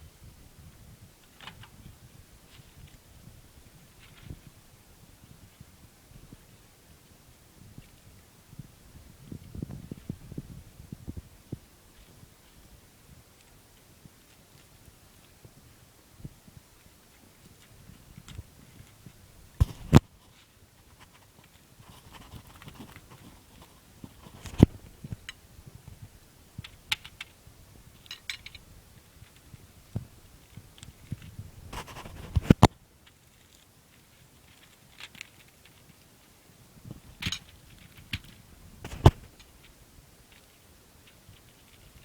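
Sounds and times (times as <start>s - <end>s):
faint rustling: 17.1s - 26.8s.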